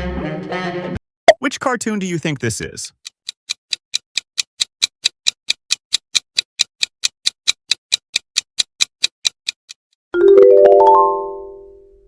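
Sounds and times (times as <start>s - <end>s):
clock ticking: 1.3s - 9.8s.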